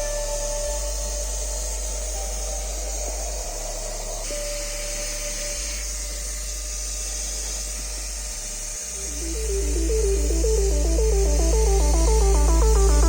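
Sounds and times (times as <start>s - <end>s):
low bass line: 9.0s - 13.0s.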